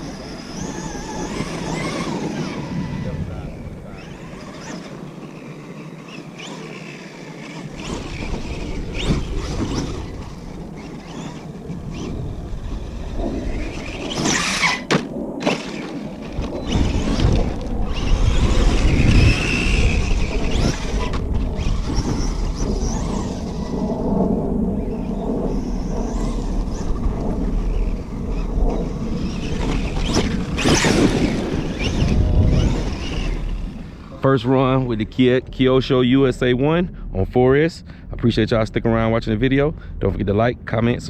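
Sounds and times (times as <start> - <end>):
rc truck electric motor whining: 0.0 - 24.0, 24.7 - 34.2
deep rumble: 0.0 - 41.0
tyres scrabbling on dirt: 0.2 - 23.7, 25.6 - 34.2.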